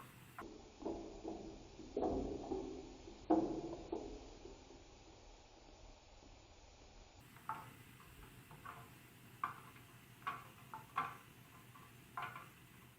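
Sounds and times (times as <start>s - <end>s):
marbles clattering down plastic track: 7.4s - 12.9s.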